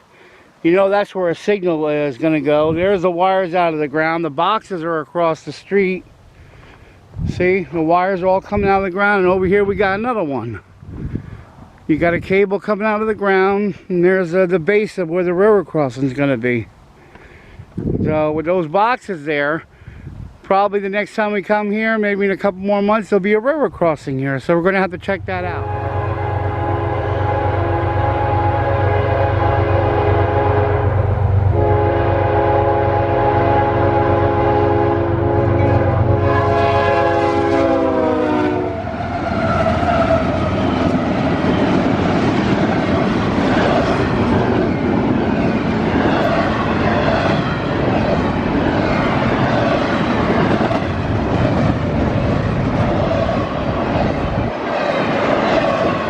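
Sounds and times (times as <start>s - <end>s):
train cars rushing past: 24.8s - 56.0s
locomotive horn blasts: 25.4s - 38.9s.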